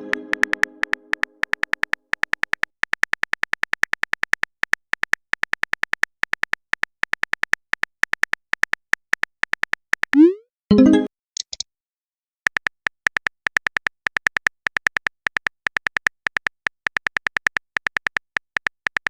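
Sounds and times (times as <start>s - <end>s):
keyboard typing clicks: 0.0s - 11.6s.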